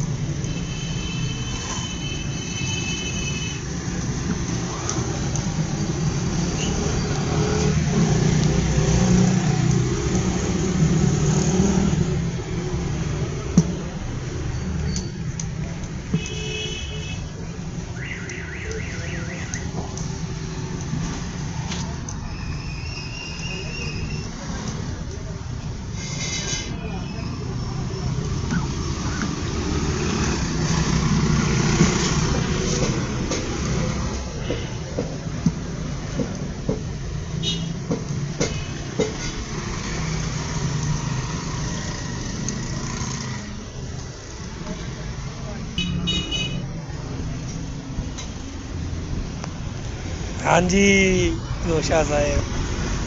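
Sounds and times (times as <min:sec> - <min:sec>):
road traffic rumble: 0:00.0 - 0:53.0
low hum of vehicle engines: 0:02.8 - 0:53.0
tools knocking on a tyre: 0:34.5 - 0:37.0.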